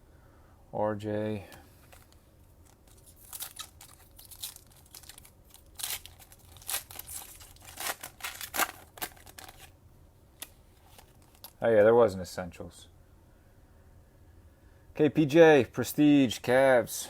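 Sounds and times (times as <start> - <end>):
card pack wrapper tearing: 1.8 - 9.7, 10.8 - 11.6.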